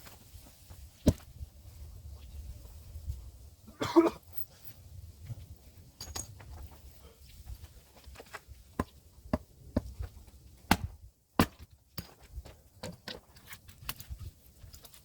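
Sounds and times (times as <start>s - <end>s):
axe chopping firewood: 1.0s - 1.3s, 8.8s - 12.2s.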